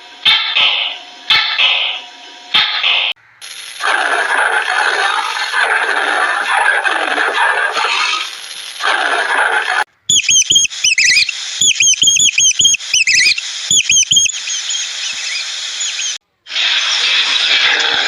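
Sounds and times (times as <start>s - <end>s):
unidentified noise: 2.8s - 18.0s
small animal squeaking: 10.1s - 16.2s.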